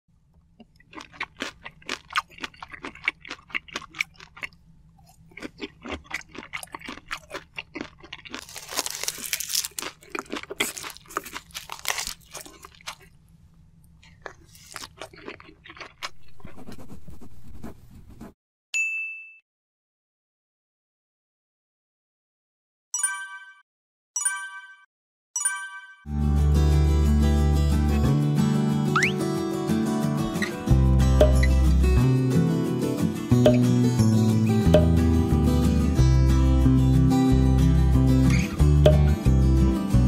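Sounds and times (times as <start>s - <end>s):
wet chewing and sucking: 0.6s - 13.2s, 13.9s - 17.0s.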